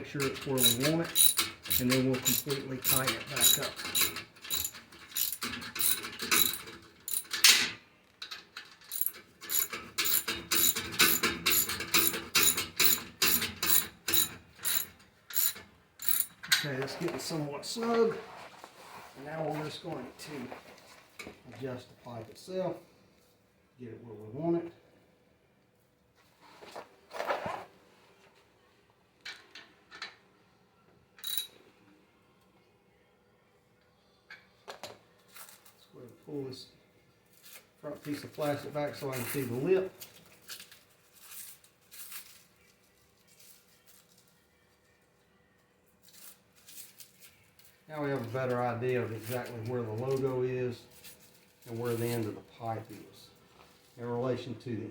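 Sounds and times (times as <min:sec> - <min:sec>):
socket ratchet clicking: 0:00.2 - 0:07.6, 0:08.8 - 0:16.4, 0:31.2 - 0:31.5
metallic clink: 0:00.2 - 0:07.7, 0:08.6 - 0:16.6, 0:31.2 - 0:31.6.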